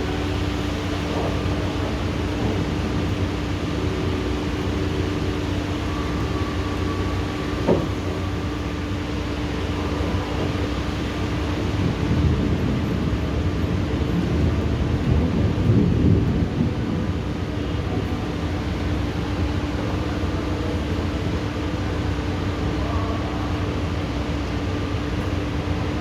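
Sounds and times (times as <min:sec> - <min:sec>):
thunder rumbling: 0:00.0 - 0:17.9
rain: 0:00.0 - 0:26.0.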